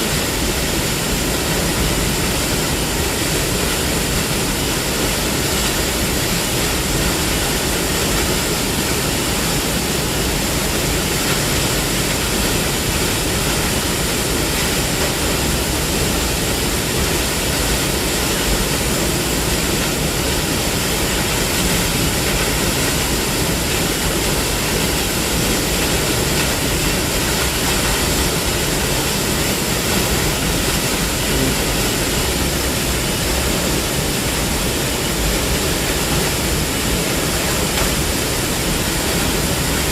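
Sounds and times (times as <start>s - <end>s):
waterfall roar: 0.0s - 39.9s.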